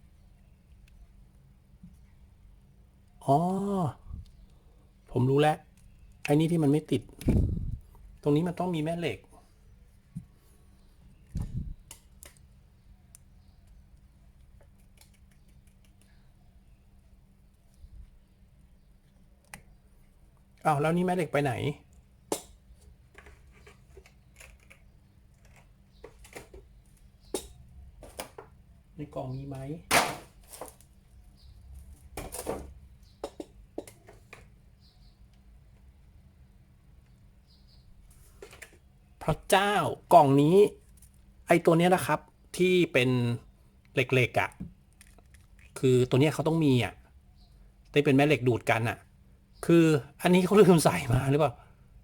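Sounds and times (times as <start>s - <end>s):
plastic parts clicking: 23.2s - 26.6s.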